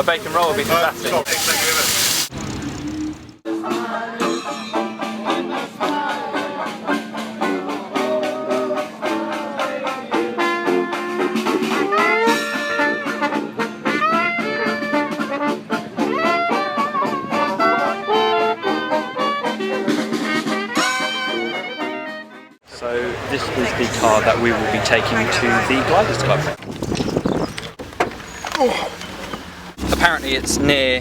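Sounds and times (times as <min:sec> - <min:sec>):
trad jazz band with brass: 0:04.7 - 0:26.6.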